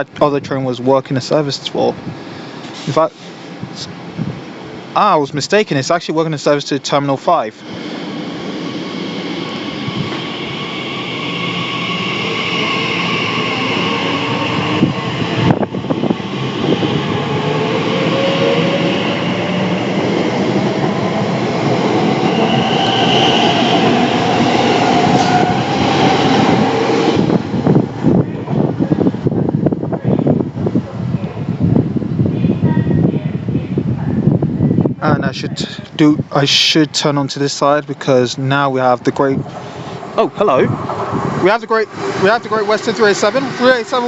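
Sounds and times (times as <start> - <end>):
train wheel and rail noise: 0.0 - 44.0
traction motors whining: 7.6 - 27.8.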